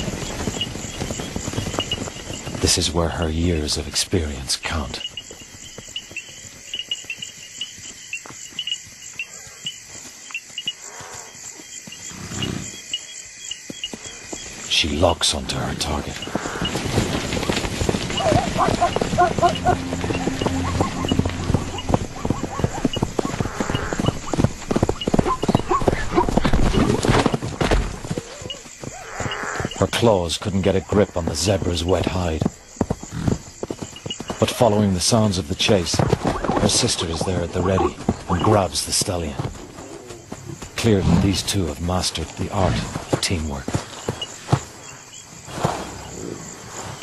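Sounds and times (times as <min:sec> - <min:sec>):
crickets chirping: 0:00.0 - 0:47.0
galloping hoofbeats: 0:00.0 - 0:47.0
zebra calls: 0:18.1 - 0:24.3.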